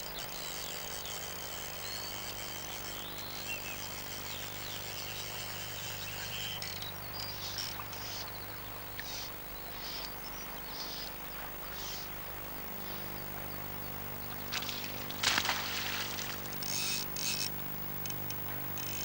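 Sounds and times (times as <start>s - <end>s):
birds chirping: 0.0s - 19.0s
low hum: 0.0s - 19.0s.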